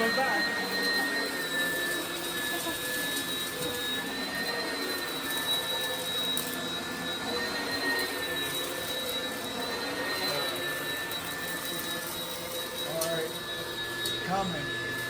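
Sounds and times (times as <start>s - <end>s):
upright vacuum whining: 0.0s - 15.0s.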